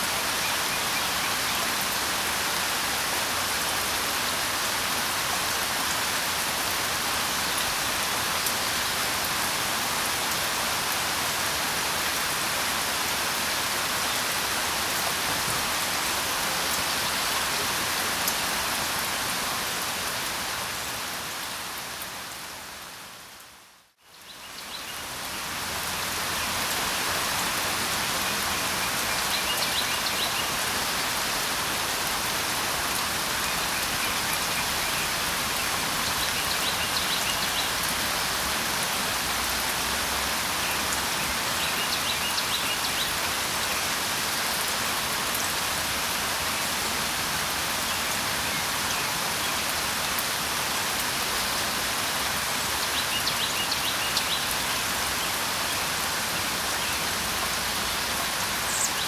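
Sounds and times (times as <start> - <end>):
steady rain hiss: 0.0 - 59.0
faint bird chirps: 58.7 - 59.0.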